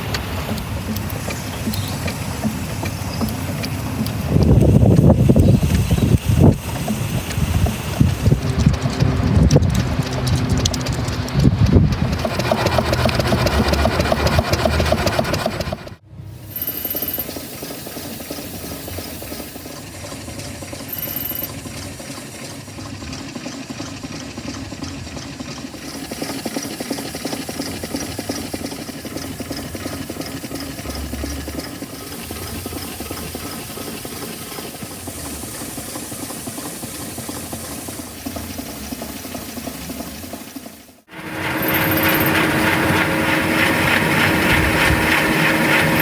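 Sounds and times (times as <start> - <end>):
hiss: 0.0 - 8.8, 16.2 - 23.4, 25.7 - 42.3
small model engine running: 0.0 - 46.0.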